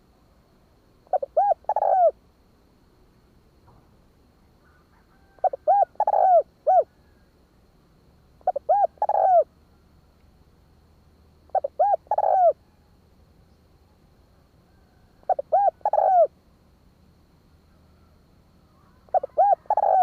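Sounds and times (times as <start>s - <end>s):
dove cooing: 1.0s - 2.2s, 4.6s - 7.3s, 8.4s - 9.5s, 11.5s - 12.8s, 14.8s - 16.3s, 18.8s - 20.0s.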